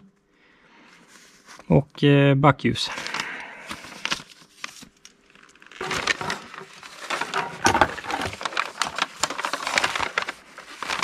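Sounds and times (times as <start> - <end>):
plastic bags rustling: 2.9 - 11.0.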